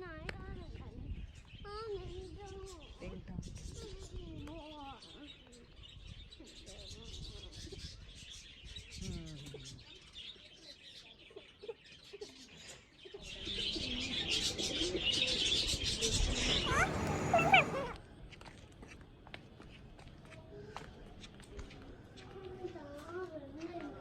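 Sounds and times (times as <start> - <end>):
birds chirping: 13.2 - 18.0
low cooing calls: 13.3 - 18.0
rising bird calls: 14.1 - 18.0.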